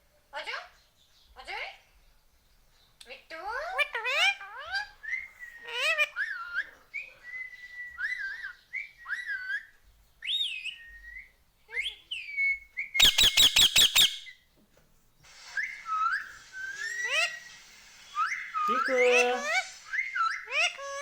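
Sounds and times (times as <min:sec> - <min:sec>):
parakeet whistling and chirping: 0:04.7 - 0:14.4, 0:15.3 - 0:21.0
parakeet harsh notes: 0:15.6 - 0:21.0.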